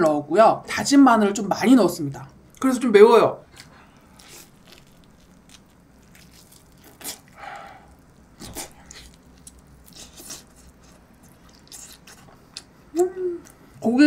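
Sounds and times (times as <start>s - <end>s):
person chewing meat: 3.4s - 13.8s.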